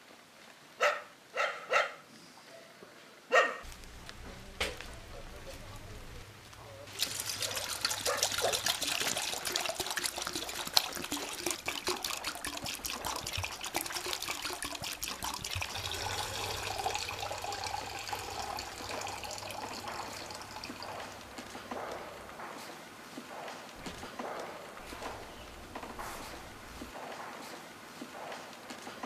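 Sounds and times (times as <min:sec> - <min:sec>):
water pouring into a pot: 0:06.8 - 0:21.5.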